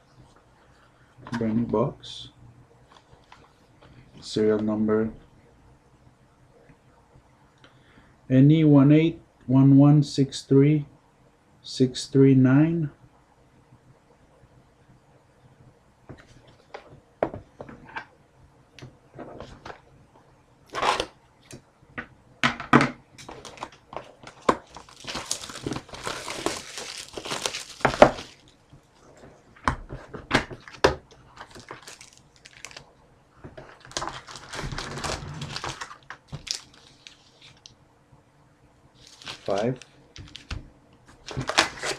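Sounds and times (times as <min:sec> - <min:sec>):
plastic wrapping crinkling and tearing: 0:23.3 - 0:28.6, 0:30.6 - 0:32.9, 0:33.6 - 0:37.7, 0:39.0 - 0:40.6, 0:41.2 - 0:41.9.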